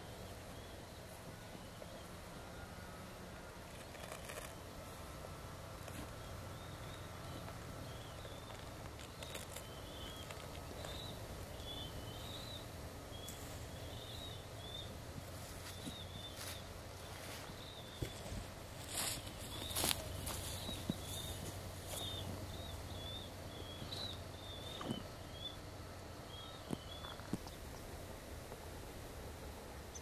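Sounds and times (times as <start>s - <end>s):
low outdoor rumble: 0.0s - 30.0s
birds chirping: 5.6s - 28.0s.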